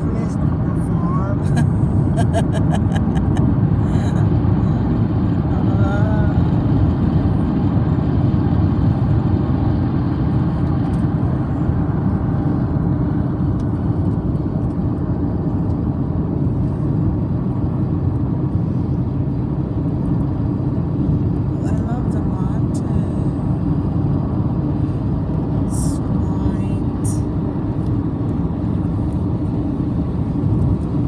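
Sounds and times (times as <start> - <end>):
car road and engine rumble: 0.0 - 31.0.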